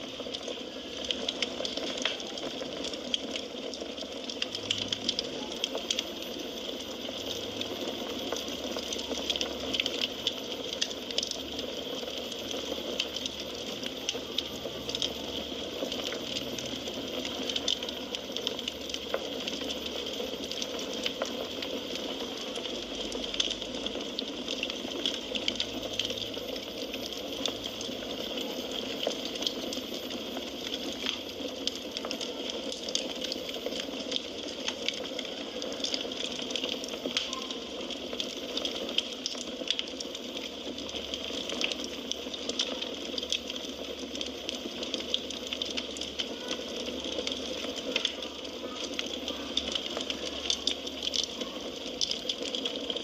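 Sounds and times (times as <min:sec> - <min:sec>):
firewood crackling and popping: 0:00.0 - 0:53.0.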